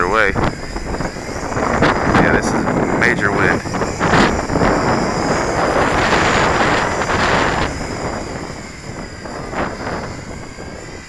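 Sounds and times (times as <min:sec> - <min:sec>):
drone motors whining: 0:00.0 - 0:11.0
wind gusts buffeting microphone: 0:00.0 - 0:11.0.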